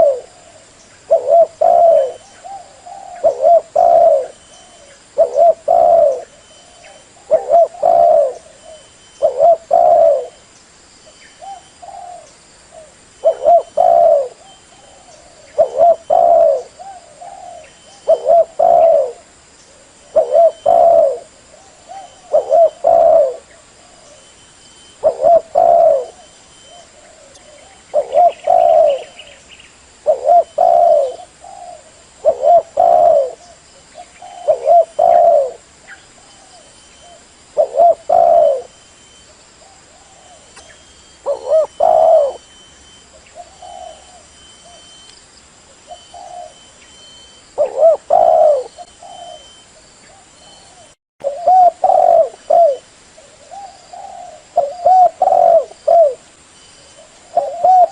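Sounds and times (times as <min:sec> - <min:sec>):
dove cooing: 0:00.0 - 0:10.4, 0:11.4 - 0:29.4, 0:30.0 - 0:45.0, 0:45.7 - 0:57.9.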